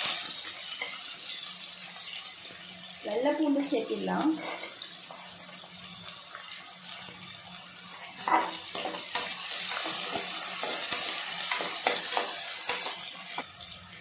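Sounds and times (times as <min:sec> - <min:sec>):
onions sizzling in hot oil: 0:00.0 - 0:14.0
metal spatula scraping a pot: 0:04.3 - 0:04.8, 0:08.2 - 0:13.1.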